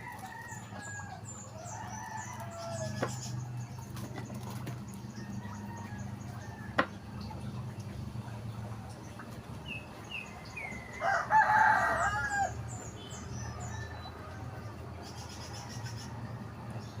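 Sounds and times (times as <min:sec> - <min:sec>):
rooster crowing: 0:00.0 - 0:03.2, 0:10.9 - 0:12.7
small birds chirping: 0:00.0 - 0:17.0.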